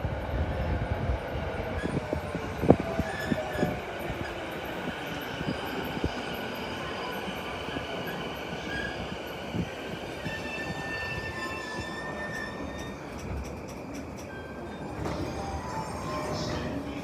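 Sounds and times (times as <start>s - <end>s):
train running with steady rumble: 0.0s - 17.0s.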